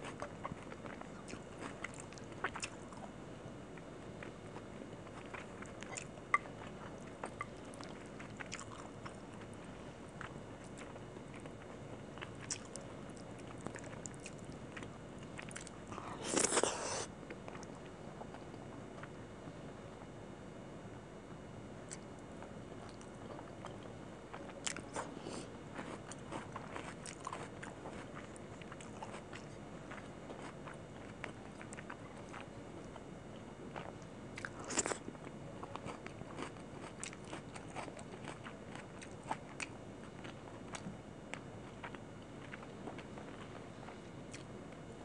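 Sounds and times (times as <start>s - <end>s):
chewing with wet mouth clicks: 0.1s - 3.0s, 5.1s - 9.5s, 10.2s - 12.8s, 13.4s - 16.6s, 25.8s - 33.0s, 33.7s - 44.5s.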